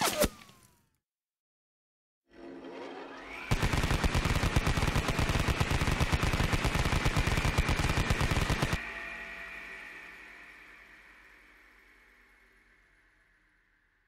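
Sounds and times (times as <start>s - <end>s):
rising whine: 2.3s - 4.1s, 7.5s - 14.0s
rapid automatic gunfire: 3.5s - 8.8s.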